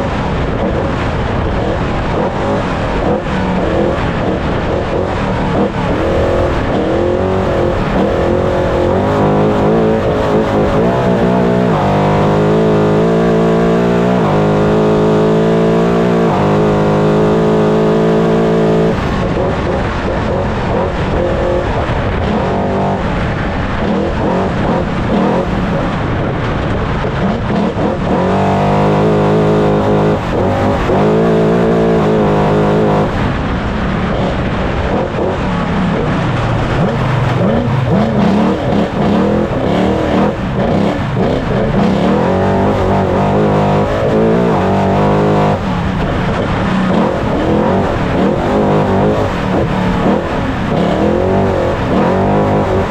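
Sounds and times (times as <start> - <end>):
truck engine running hard: 0.0 - 52.9
wind and terrain noise: 0.0 - 52.9.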